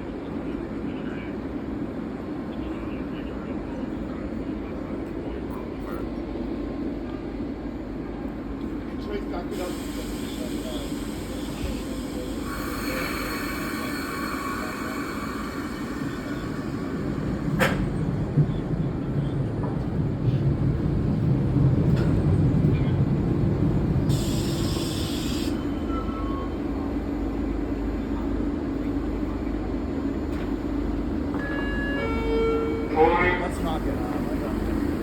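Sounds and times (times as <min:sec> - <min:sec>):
subway train rumbling: 0:00.0 - 0:35.0
hiss of air: 0:09.6 - 0:17.1, 0:24.1 - 0:25.6.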